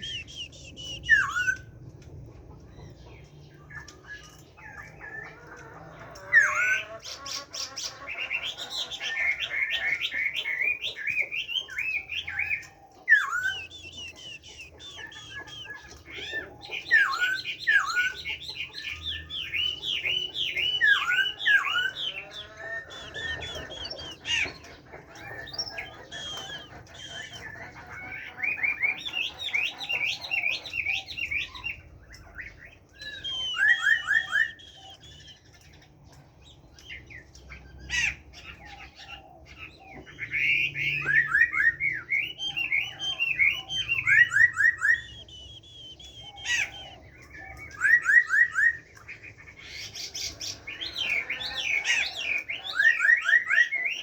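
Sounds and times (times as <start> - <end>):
bird singing whistled phrases: 0.0 - 1.7, 9.1 - 24.5, 25.2 - 27.6, 28.3 - 35.5, 40.2 - 49.0.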